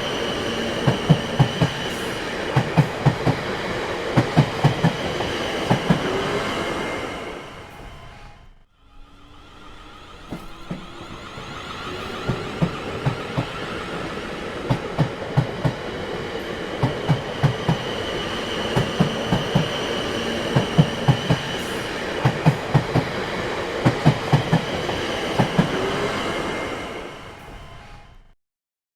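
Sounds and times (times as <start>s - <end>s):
train rumbling: 0.0s - 28.3s.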